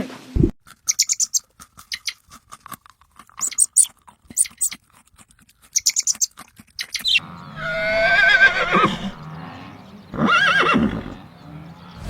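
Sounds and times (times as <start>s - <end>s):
animal calling with quavering voice: 5.8s - 12.0s.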